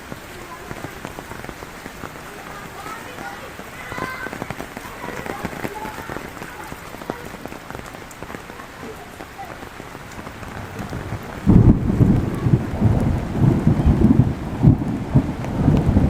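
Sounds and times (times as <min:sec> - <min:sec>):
heavy rain hissing: 0:00.0 - 0:16.0
raindrop ticks: 0:00.0 - 0:16.0
thunder rumbling: 0:09.5 - 0:16.0.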